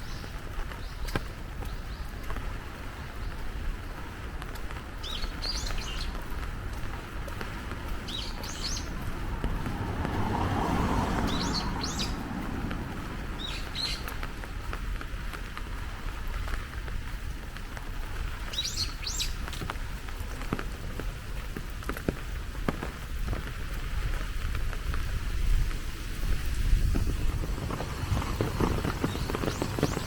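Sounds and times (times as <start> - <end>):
rain hissing: 0.1 - 30.0
broad low rushing noise: 3.7 - 15.2, 24.4 - 30.0.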